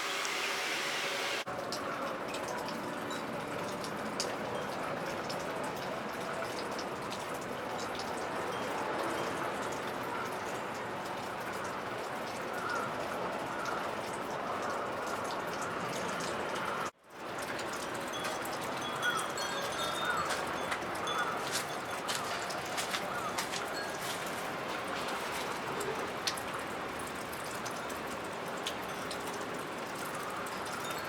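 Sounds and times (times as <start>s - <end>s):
wind chimes tinkling: 17.8s - 25.6s, 30.4s - 31.0s.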